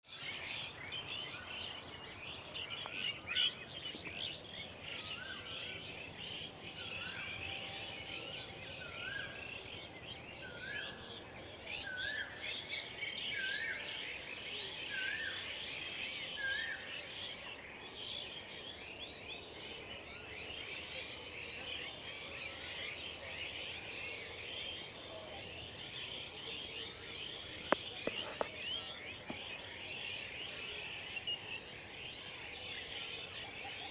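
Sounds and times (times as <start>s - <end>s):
many small birds chirping: 0.0s - 33.9s.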